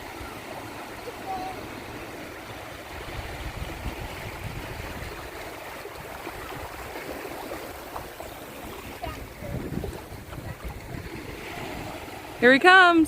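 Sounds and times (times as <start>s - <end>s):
waves washing over shore: 0.0s - 13.0s
wind buffeting microphone: 2.8s - 12.5s.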